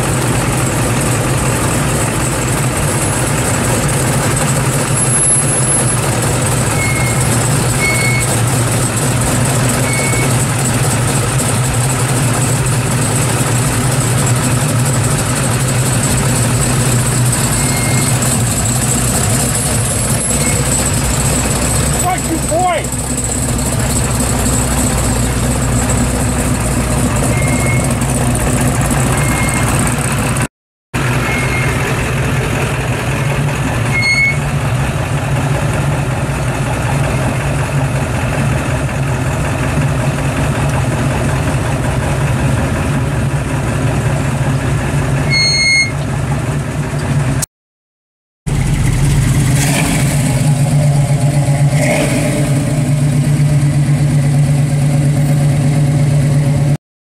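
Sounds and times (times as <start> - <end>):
car engines idling: 0.0 - 47.4, 48.5 - 56.8.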